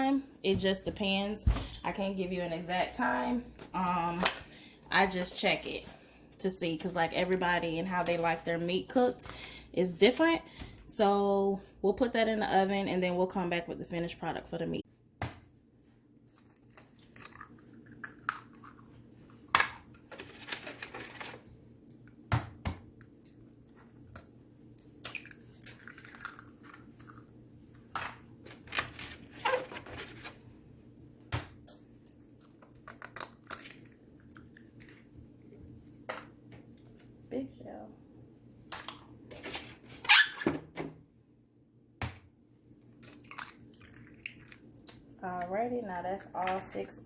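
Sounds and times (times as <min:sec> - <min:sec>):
eggs cracking against a bowl: 0:16.6 - 0:20.0, 0:22.6 - 0:28.2, 0:31.3 - 0:35.0, 0:43.0 - 0:45.2.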